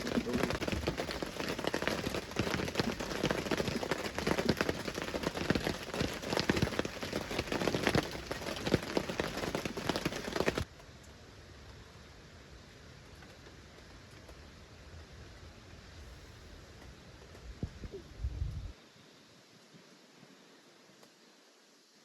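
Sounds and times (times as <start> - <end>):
rain pattering: 0.0 - 15.4.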